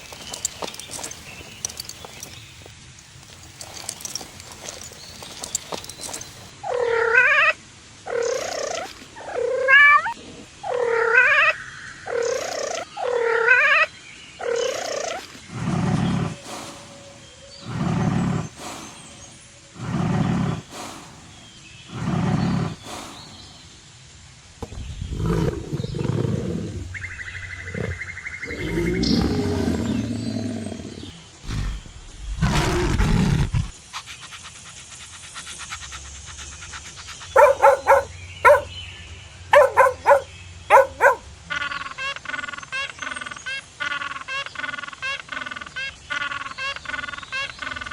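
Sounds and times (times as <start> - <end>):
deeper animal calls: 25.0 - 33.8, 37.4 - 38.7, 39.5 - 41.2.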